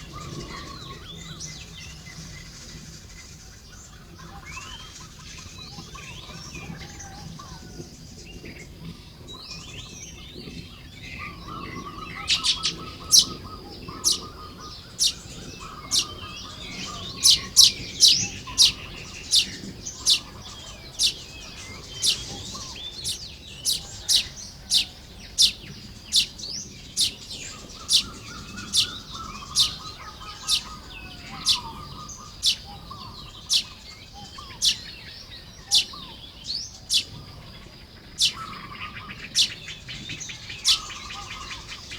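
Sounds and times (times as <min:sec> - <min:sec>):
weaver birds chattering: 0:00.0 - 0:41.9
sharp loud bird chirps: 0:12.2 - 0:36.1, 0:36.7 - 0:37.2, 0:38.2 - 0:38.7
buzzy rattling bird trill: 0:12.3 - 0:34.9, 0:35.6 - 0:36.0, 0:36.8 - 0:37.2, 0:38.2 - 0:38.6.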